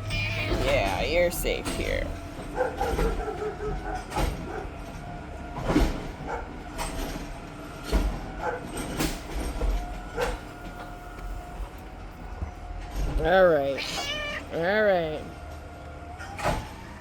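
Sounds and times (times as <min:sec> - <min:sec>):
garbage truck mechanical whine: 0:00.0 - 0:17.0
clanks and bangs: 0:00.1 - 0:10.9.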